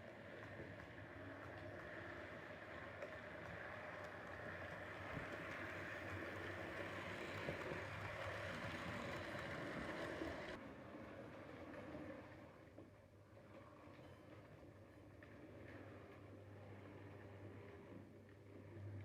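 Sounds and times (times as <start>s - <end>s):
model train motor hum: 0.0s - 10.6s
wheels rumbling on track: 0.0s - 10.6s.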